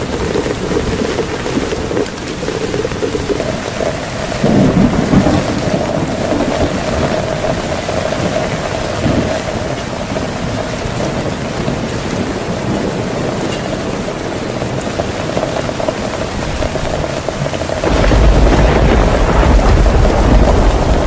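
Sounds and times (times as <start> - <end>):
heavy rain falling: 0.0 - 21.0
low thunder rumbling: 0.0 - 21.0.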